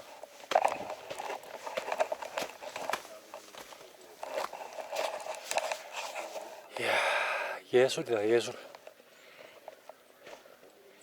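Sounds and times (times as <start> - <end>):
footsteps crunching on snow: 0.0 - 6.6.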